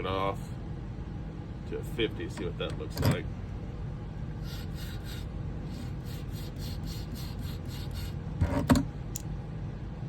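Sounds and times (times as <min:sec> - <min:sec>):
sharpening stone rubbing on blade: 0:04.4 - 0:08.2.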